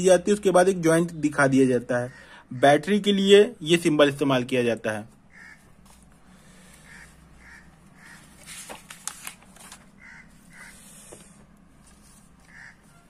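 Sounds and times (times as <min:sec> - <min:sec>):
paper rustling: 0:05.1 - 0:13.0
faint bird calls: 0:05.3 - 0:08.6, 0:10.0 - 0:11.4, 0:12.4 - 0:13.0
book page turning clicks: 0:08.4 - 0:09.9.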